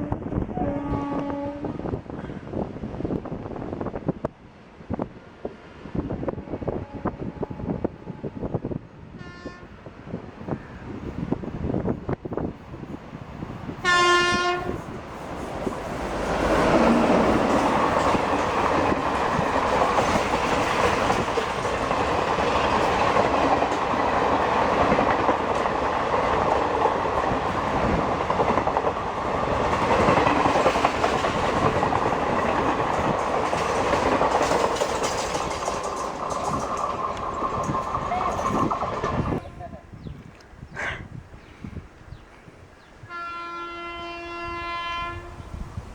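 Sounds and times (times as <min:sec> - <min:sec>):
train horn blast: 0:00.0 - 0:02.0, 0:06.3 - 0:09.8, 0:13.8 - 0:15.0, 0:43.0 - 0:45.6
train passing at speed: 0:00.0 - 0:39.7, 0:42.7 - 0:45.9.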